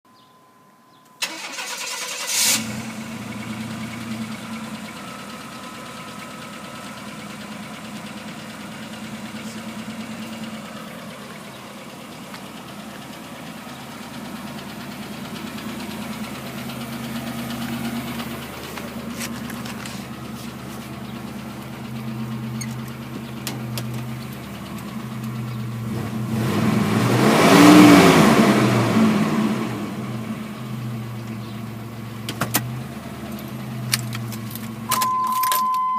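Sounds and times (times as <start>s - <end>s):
engine revving: 1.2s - 4.9s, 21.6s - 31.3s
engine starting and idling: 1.2s - 26.8s.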